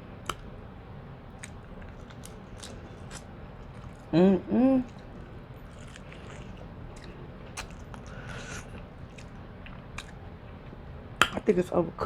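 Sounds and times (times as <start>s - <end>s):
chewing and biting: 0.2s - 0.5s, 1.3s - 10.8s
small wet mouth clicks: 0.2s - 0.5s, 1.4s - 4.1s.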